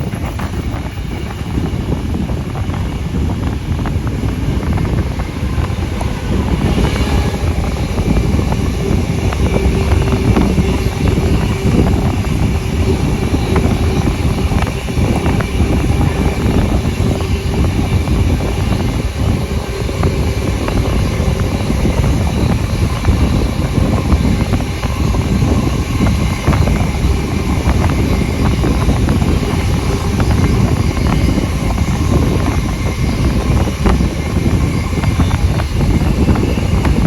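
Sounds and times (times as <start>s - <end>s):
steam train wheels on rails: 0.0s - 37.0s
wind noise: 0.0s - 37.0s.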